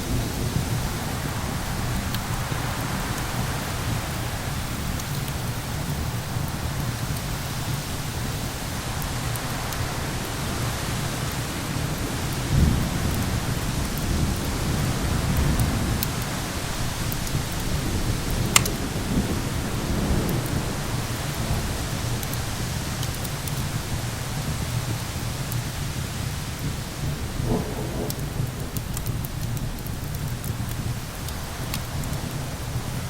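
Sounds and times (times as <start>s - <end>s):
rain and wind hiss: 0.0s - 33.0s
wood fire crackling: 0.0s - 33.0s
rolling thunder: 8.9s - 33.0s.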